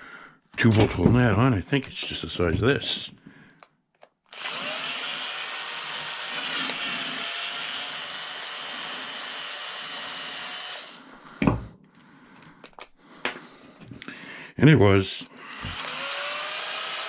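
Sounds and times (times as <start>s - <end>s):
small power tool running: 4.3s - 11.0s, 15.5s - 17.0s.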